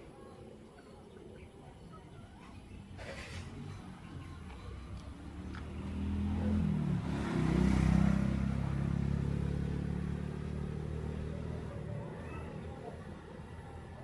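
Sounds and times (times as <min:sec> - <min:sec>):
vehicle engine passing by: 0:02.9 - 0:14.0.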